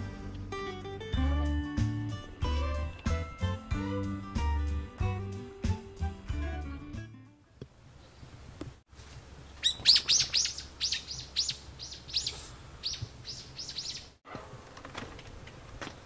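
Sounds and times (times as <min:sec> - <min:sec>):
small bird chirping: 0:09.5 - 0:14.2.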